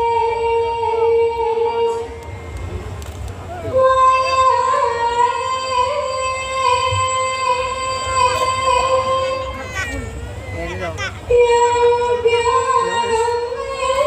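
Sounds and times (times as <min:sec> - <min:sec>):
high female singing voice: 0:03.6 - 0:10.0, 0:11.2 - 0:14.0.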